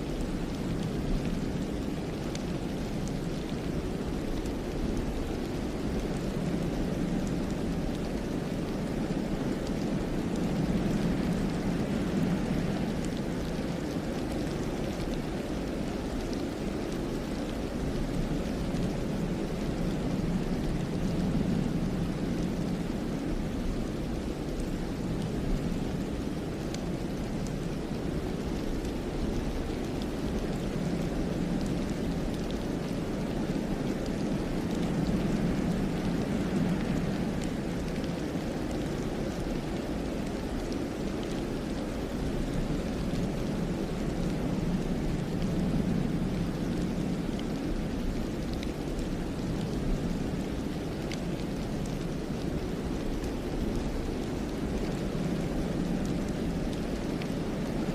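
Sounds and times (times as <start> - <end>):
wind through pine trees: 0.0 - 57.9.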